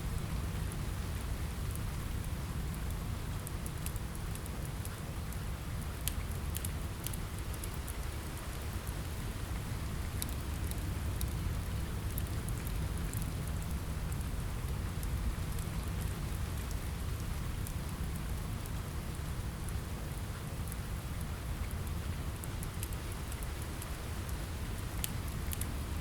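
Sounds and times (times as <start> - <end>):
rain on a window: 0.0 - 26.0
wood fire crackling: 0.1 - 26.0.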